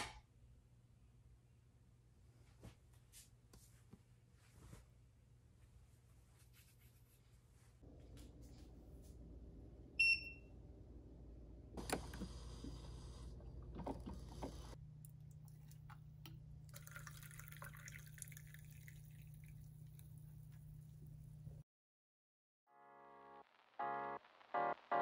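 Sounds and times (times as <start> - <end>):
steady low hum: 7.8 - 17.0
liquid pouring into a mug: 13.7 - 20.4.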